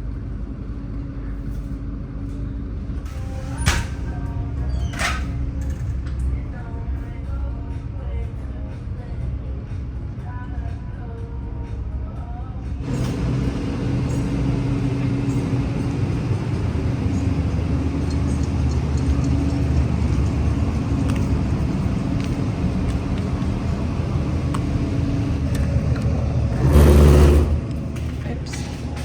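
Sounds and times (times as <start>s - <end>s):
road vehicle rumbling: 0.0s - 29.0s
loud rush: 26.2s - 28.0s.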